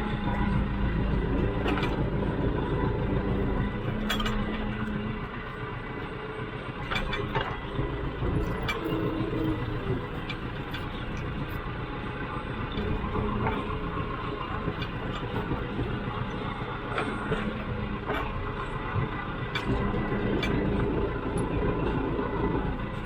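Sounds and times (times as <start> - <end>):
tractor engine running: 0.0 - 23.0
metallic knocks and clanks: 4.0 - 4.8.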